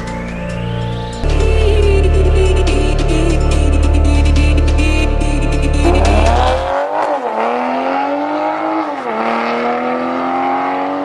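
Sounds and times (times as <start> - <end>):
background music: 0.0 - 8.2
car engine accelerating: 0.0 - 11.0.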